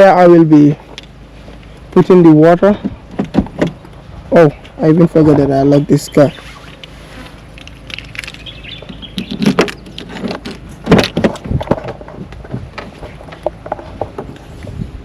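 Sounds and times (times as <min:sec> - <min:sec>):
barrels knocking and clattering: 0:08.8 - 0:14.4.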